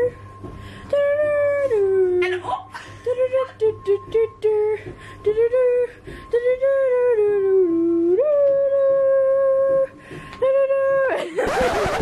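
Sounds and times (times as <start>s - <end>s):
person singing wordless tune: 0.9s - 11.4s.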